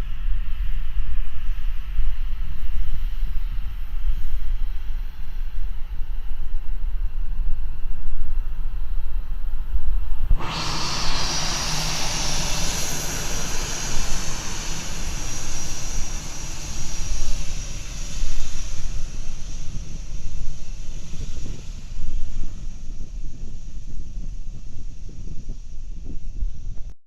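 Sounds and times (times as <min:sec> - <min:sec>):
wind rumble on microphone: 0:00.0 - 0:27.0
airplane engine whine: 0:10.2 - 0:27.0.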